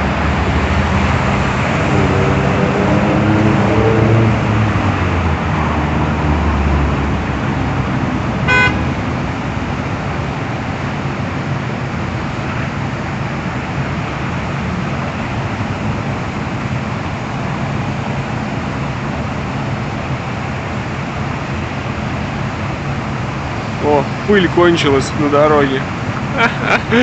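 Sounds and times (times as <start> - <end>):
street sweeper truck running: 0.0 - 27.0
traffic: 0.0 - 27.0
vehicle horn toot: 8.4 - 9.0.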